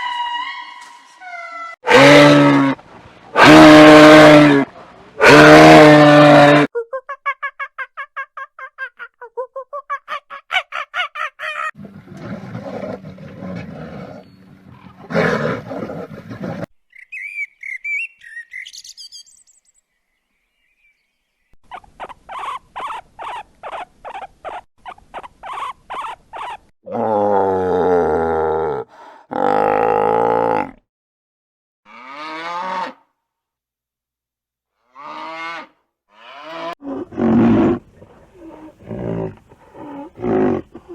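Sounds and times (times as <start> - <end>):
high chirping call: 16.9 - 19.8
deep-voiced animal calls: 21.7 - 30.8.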